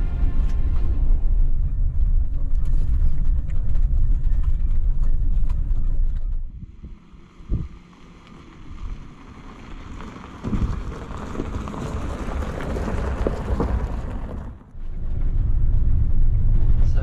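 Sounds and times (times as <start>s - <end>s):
low vehicle rumble: 0.0s - 17.0s
tyres crunching over gravel: 2.6s - 14.7s.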